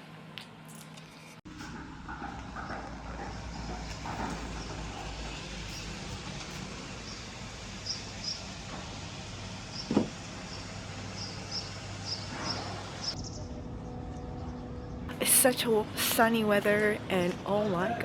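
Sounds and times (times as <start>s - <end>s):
outdoor background noise: 0.0s - 18.0s
knock: 9.9s - 10.2s.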